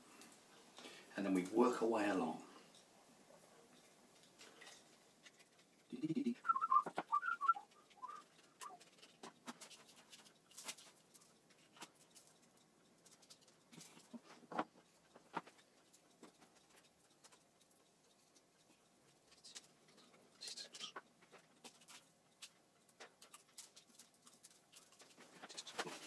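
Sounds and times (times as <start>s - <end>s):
high squeaky chirps: 6.4s - 8.8s.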